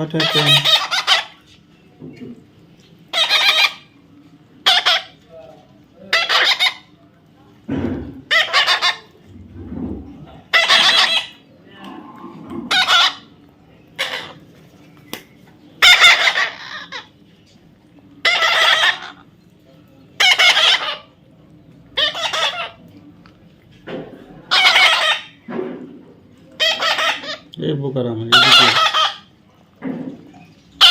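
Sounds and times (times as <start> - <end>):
parrot screeching: 0.0 - 1.4, 3.1 - 3.9, 4.6 - 5.2, 6.0 - 6.9, 8.3 - 9.1, 10.4 - 11.4, 12.7 - 13.4, 14.0 - 14.4, 15.8 - 17.1, 18.2 - 19.3, 20.2 - 21.1, 22.0 - 22.8, 24.5 - 25.4, 26.6 - 27.5, 28.3 - 29.3.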